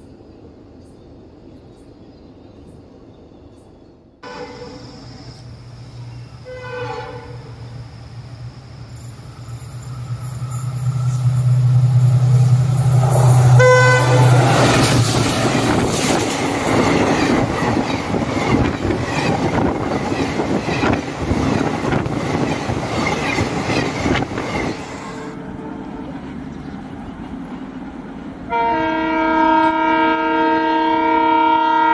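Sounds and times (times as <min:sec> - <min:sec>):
train wheels clattering over rail joints: 0:14.3 - 0:25.0.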